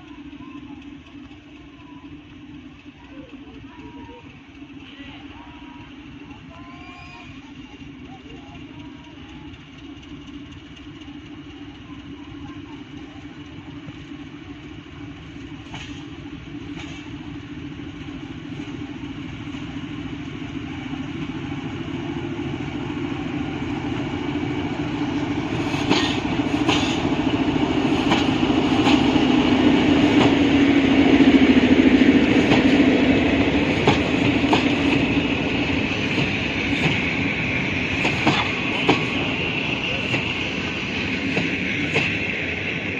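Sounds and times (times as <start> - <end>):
locomotive engine drone: 0.0 - 42.9
wheels clacking over rail joints: 21.1 - 42.9.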